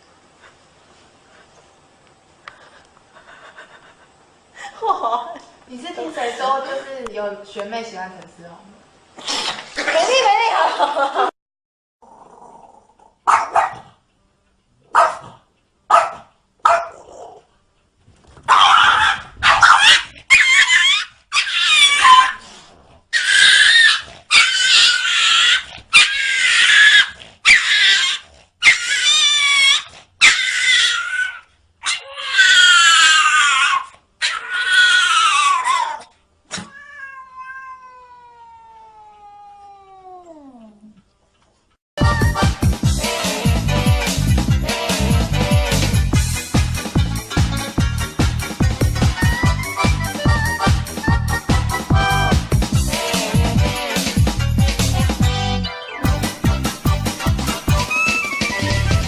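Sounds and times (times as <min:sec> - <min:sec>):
cats yowling and meowing: 0:18.6 - 0:22.4, 0:23.2 - 0:40.9, 0:57.8 - 0:58.7.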